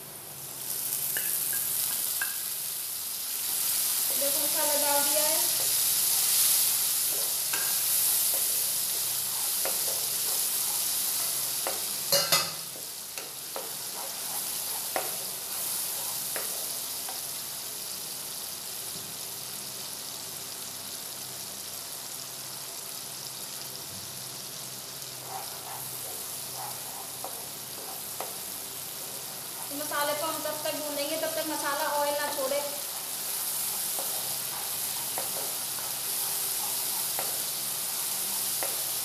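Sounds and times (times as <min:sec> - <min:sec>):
onions sizzling in hot oil: 0:00.0 - 0:39.0.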